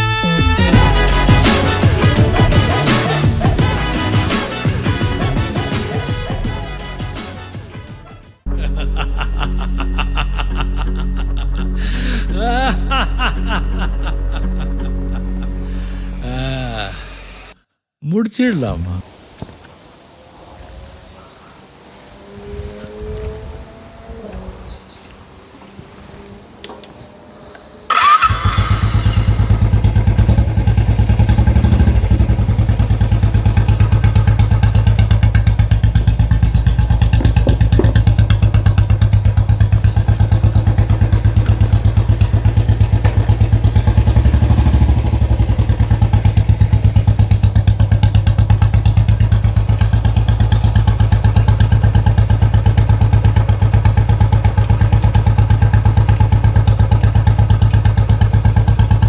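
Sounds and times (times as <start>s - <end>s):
motorcycle engine idling: 0.1s - 7.1s, 22.3s - 59.0s.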